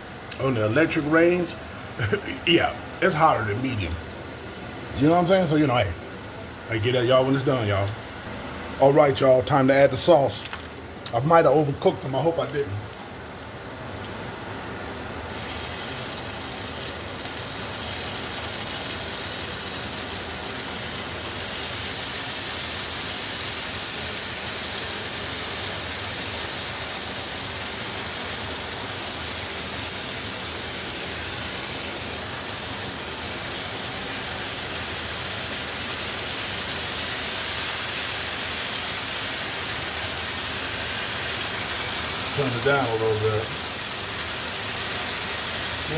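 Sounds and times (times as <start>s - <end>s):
food sizzling in frying pan: 15.3s - 45.9s.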